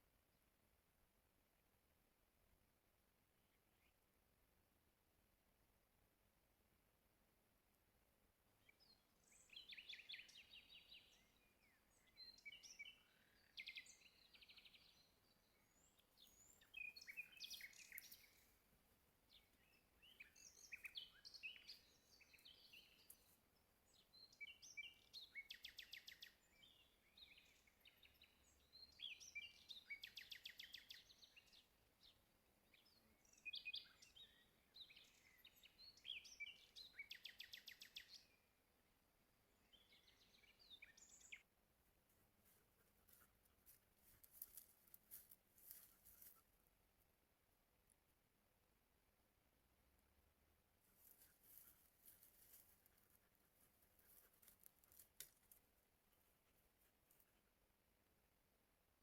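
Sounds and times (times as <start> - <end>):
songbirds chirping and trilling: 8.4 - 46.6.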